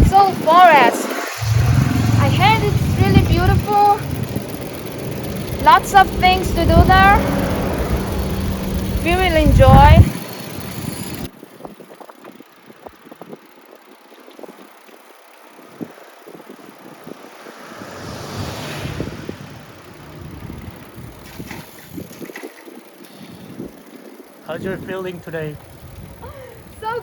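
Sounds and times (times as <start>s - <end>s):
broad rushing sound: 0.0s - 11.3s
wind buffeting microphone: 0.0s - 27.0s.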